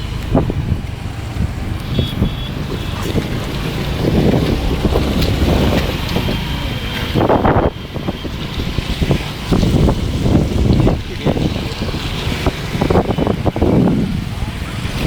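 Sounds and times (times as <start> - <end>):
river rushing: 0.0 - 15.0
wind buffeting microphone: 0.0 - 15.0.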